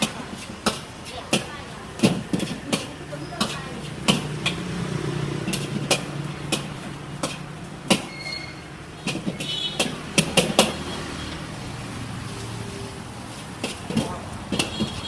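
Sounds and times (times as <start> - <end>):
sharp knocks and clicks: 5.4 - 8.1, 9.0 - 10.9, 13.6 - 15.0.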